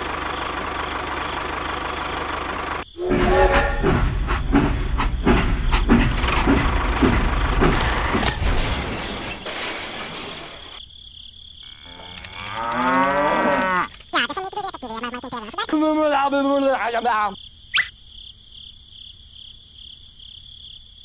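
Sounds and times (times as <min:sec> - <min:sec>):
rumbling clattering with knocks: 0:03.1 - 0:10.8
cow mooing: 0:11.8 - 0:13.9.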